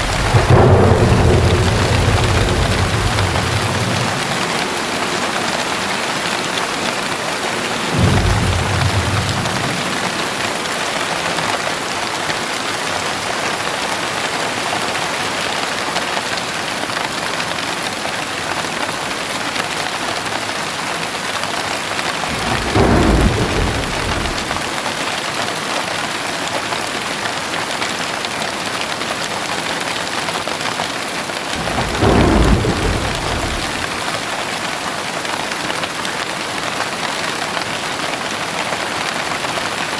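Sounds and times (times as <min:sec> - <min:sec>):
low thunder rumbles: 0:00.0 - 0:06.3, 0:07.4 - 0:11.0, 0:22.1 - 0:25.0, 0:31.5 - 0:34.4
heavy rain falling: 0:00.0 - 0:25.6, 0:28.2 - 0:39.9.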